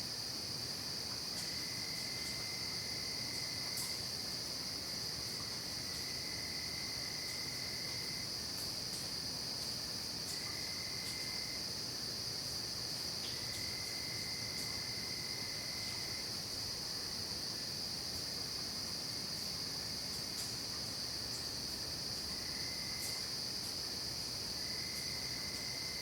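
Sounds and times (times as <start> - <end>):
crickets and insects trilling: 0.0 - 26.0.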